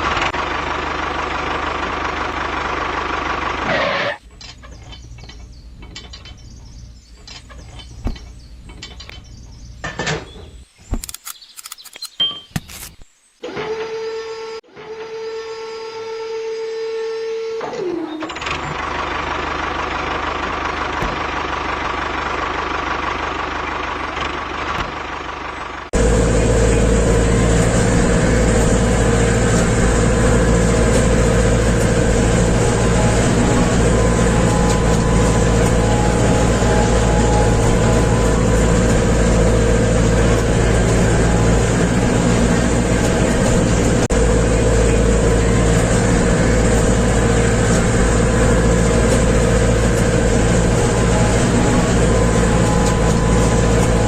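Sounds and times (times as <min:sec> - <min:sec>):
engine running: 0:00.0 - 0:10.2, 0:13.4 - 0:54.0
small motor humming: 0:26.0 - 0:54.0.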